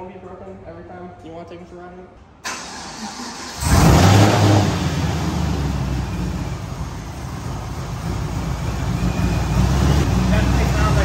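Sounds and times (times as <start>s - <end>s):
car engine starting and idling: 2.4s - 11.0s.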